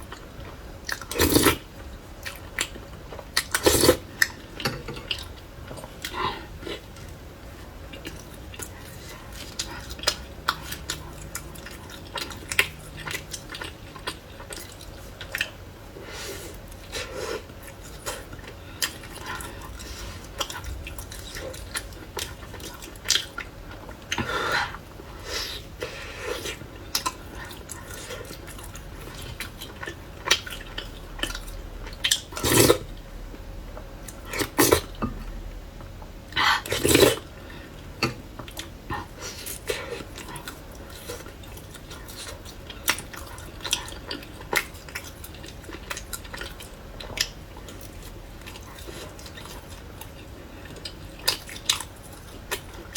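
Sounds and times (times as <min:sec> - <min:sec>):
chewing: 0:07.8 - 0:15.6, 0:16.5 - 0:24.8, 0:38.0 - 0:52.9.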